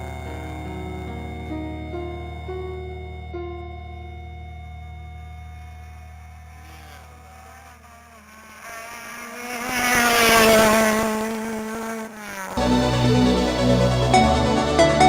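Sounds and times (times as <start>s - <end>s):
music: 0.0s - 6.2s, 12.6s - 15.0s
rally car engine passing: 5.5s - 14.2s.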